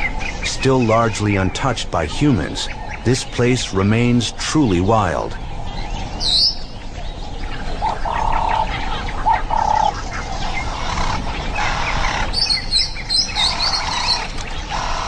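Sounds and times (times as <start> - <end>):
birds calling: 0.0 - 15.0
high bird chirps: 7.4 - 15.0.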